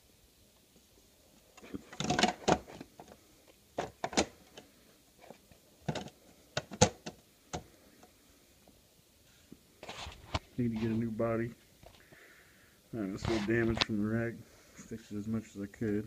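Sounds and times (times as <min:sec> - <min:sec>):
rc truck parts clicking and rattling: 0:01.6 - 0:03.1.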